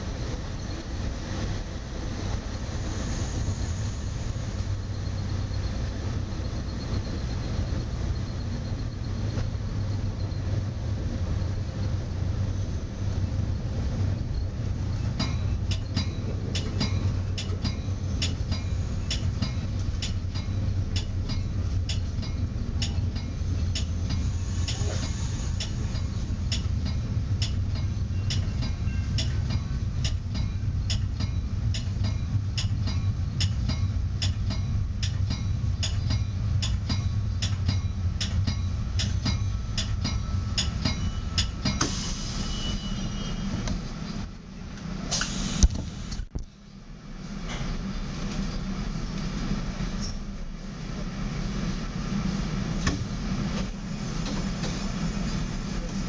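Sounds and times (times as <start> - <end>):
train rumble with wheel clicks: 0.0 - 56.0
hiss: 2.4 - 5.2, 23.8 - 26.3, 41.7 - 42.9, 45.0 - 46.2.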